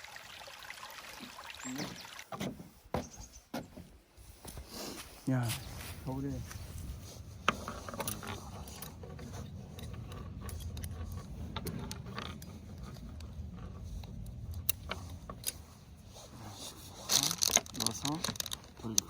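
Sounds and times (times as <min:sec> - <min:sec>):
steady low rumble: 0:05.6 - 0:19.0
gear clicking and rattling: 0:06.2 - 0:19.0.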